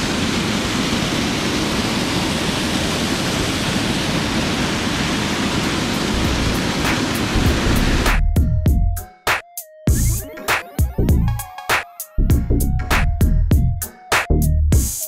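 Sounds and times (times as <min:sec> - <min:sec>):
waterfall rushing over rock: 0:00.0 - 0:08.1
faint rhythmic background music: 0:07.4 - 0:15.0.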